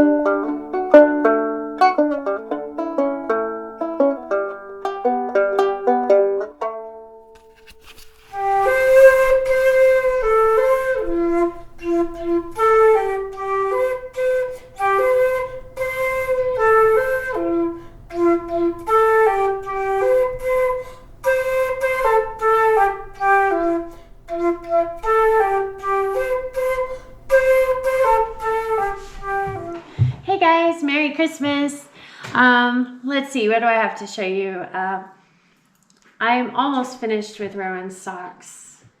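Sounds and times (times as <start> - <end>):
solo flute melody: 8.2 - 30.0.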